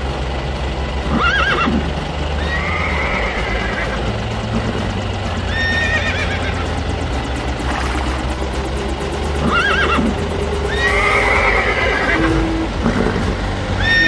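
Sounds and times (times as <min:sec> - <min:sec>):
steady low hum: 0:00.0 - 0:14.0
horse whinnying: 0:01.1 - 0:01.8, 0:02.4 - 0:04.0, 0:05.5 - 0:06.6, 0:09.4 - 0:10.1, 0:10.7 - 0:14.0.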